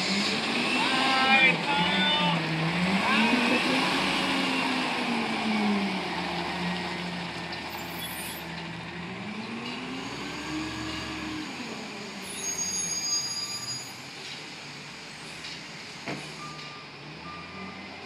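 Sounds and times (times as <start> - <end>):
diesel engine revving: 0.0 - 13.0.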